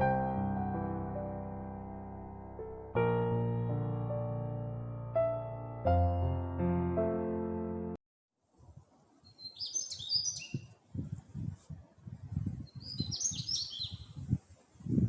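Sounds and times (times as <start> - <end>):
piano music: 0.0 - 8.0
songbird twittering: 9.2 - 10.7, 12.6 - 14.2.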